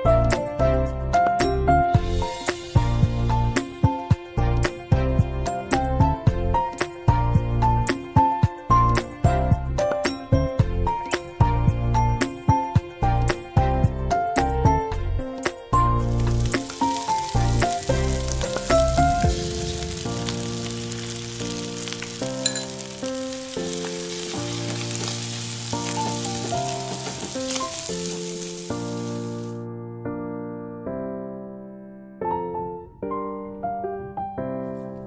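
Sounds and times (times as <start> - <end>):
keyboard background music: 0.0 - 35.0
fried rice sizzling in a wok: 16.0 - 29.6
wooden spatula stirring: 16.2 - 29.5.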